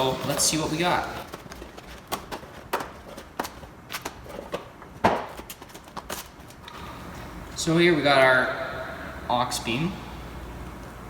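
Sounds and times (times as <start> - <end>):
packaging being handled: 0.0 - 6.6.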